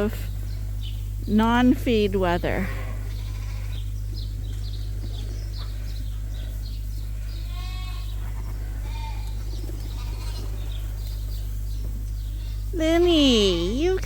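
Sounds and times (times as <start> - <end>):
steady low hum: 0.0 - 14.0
lambs bleating: 2.5 - 3.9, 7.2 - 10.8.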